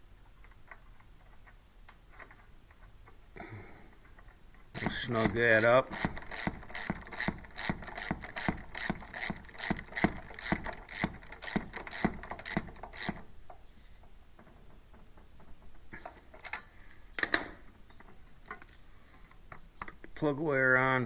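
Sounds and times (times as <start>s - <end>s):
ratchet wrench clicking: 4.8s - 13.3s.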